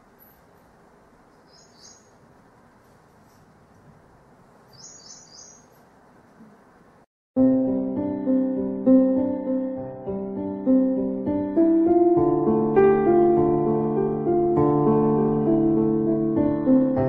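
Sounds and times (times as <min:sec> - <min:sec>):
small birds chirping: 0:00.0 - 0:06.6
faint room hiss: 0:00.0 - 0:07.1
piano music: 0:07.4 - 0:17.0.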